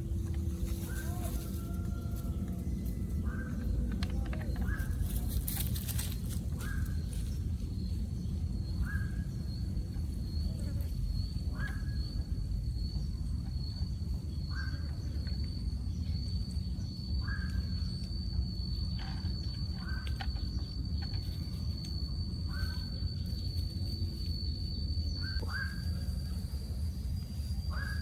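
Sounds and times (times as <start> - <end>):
bird calling: 0.0 - 7.3, 25.1 - 26.5, 27.6 - 28.0
low rumbling: 0.0 - 8.7
high-pitched whine: 0.0 - 28.0.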